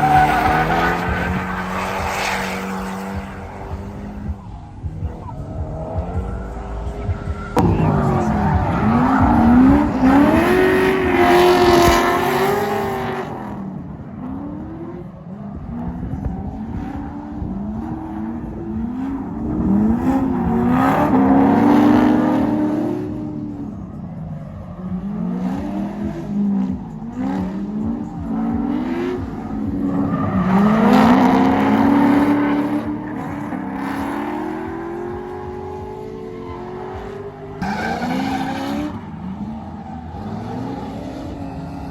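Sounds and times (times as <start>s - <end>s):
car engines revving: 0.0s - 41.9s
tyres squealing: 37.6s - 40.7s.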